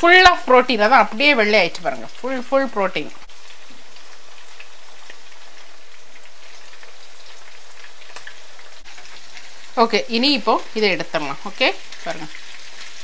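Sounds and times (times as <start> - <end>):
prawns sizzling in hot oil: 0.0 - 13.0.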